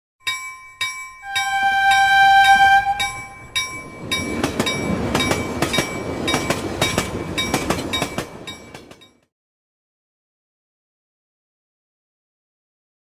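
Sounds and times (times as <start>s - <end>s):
train horn blast: 1.3s - 3.5s
train wheels clattering: 1.3s - 9.2s.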